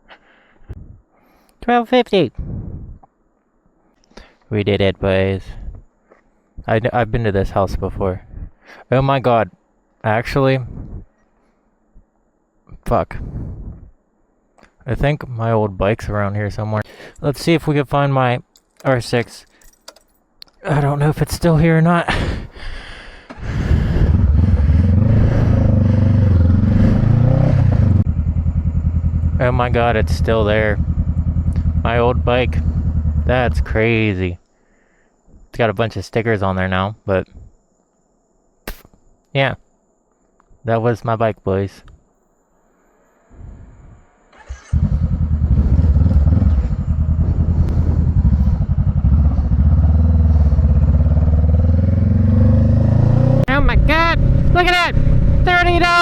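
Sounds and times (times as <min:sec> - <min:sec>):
motorcycle engine starting and running: 0:23.3 - 0:33.8, 0:44.3 - 0:56.0.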